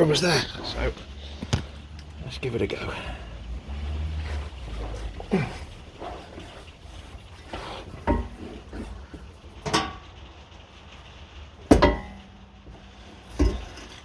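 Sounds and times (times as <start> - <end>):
metal exhaust pipe clanking: 0.0 - 14.0
metal pipe ringing: 9.6 - 10.2, 11.7 - 14.0.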